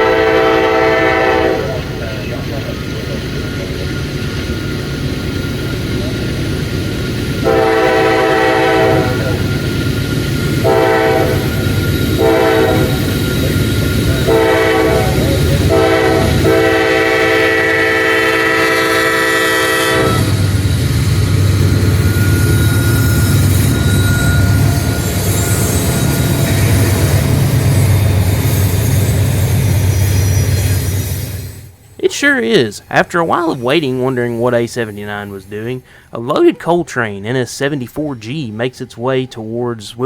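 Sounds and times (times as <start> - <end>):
locomotive horn blasts: 0.0 - 2.0, 7.4 - 9.5, 10.6 - 13.1, 14.2 - 20.6
diesel engine rumbling: 0.0 - 39.8
train cars rolling past: 0.0 - 40.0.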